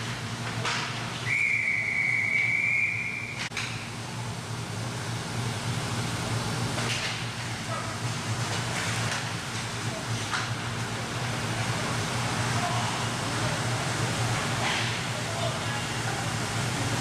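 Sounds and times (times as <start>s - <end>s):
low hum from rink: 0.0s - 17.0s
referee's whistle: 1.2s - 3.4s.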